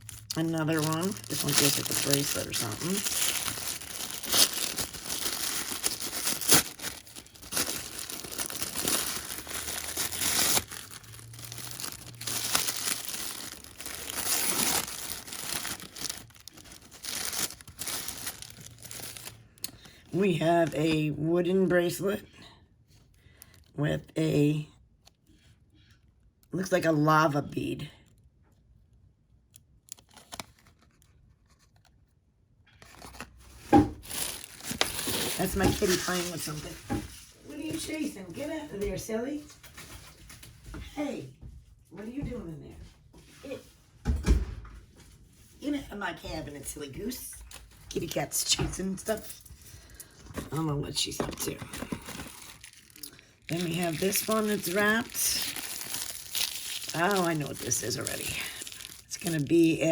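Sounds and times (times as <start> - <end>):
wrapping paper crinkling and tearing: 0.0 - 20.8, 29.8 - 32.0, 32.7 - 37.8, 49.1 - 59.9.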